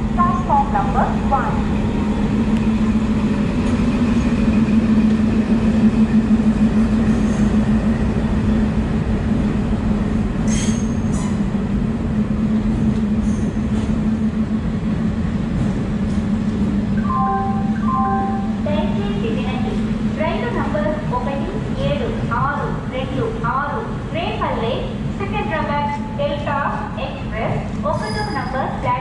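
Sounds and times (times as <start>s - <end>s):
locomotive low drone: 0.0s - 24.2s
train wheels rumbling on rail: 0.0s - 29.0s
train brakes squealing: 7.1s - 7.6s, 10.4s - 11.5s, 13.2s - 13.9s, 27.8s - 28.8s.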